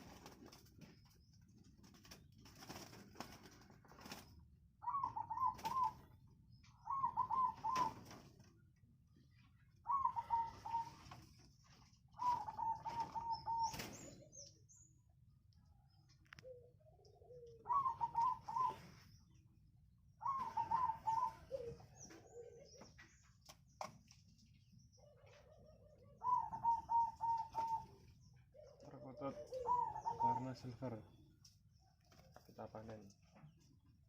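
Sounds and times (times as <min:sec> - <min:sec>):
doves cooing: 0:02.7 - 0:14.7, 0:16.4 - 0:19.4, 0:20.2 - 0:23.4, 0:25.0 - 0:31.2.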